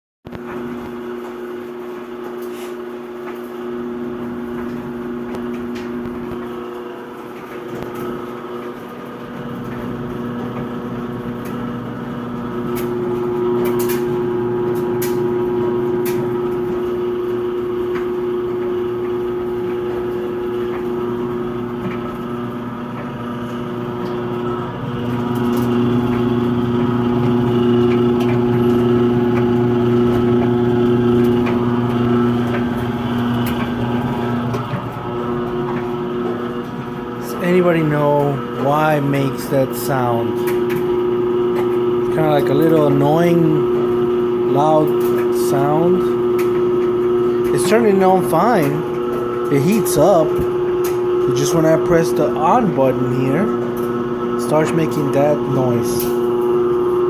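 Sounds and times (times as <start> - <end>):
clothes dryer electrical buzz: 0.3 - 57.0.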